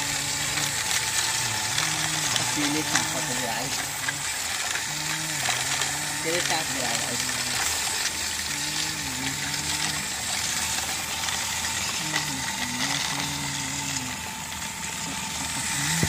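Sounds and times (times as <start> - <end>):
toy motors and gears whirring: 0.0 - 16.0
person humming: 1.4 - 7.7, 8.4 - 10.3, 11.9 - 14.3, 15.0 - 16.0.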